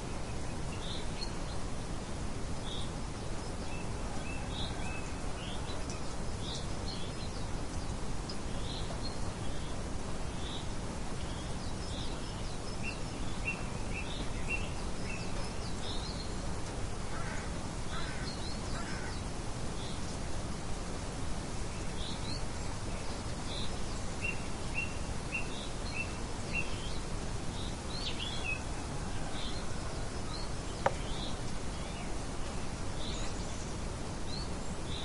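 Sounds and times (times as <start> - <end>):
small birds chirping: 21.0 - 35.0.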